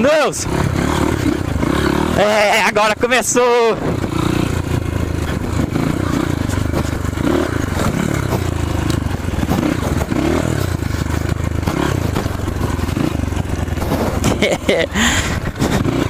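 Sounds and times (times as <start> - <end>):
motorcycle engine revving: 0.0 - 16.0
clattering and scraping over ground: 6.0 - 15.9.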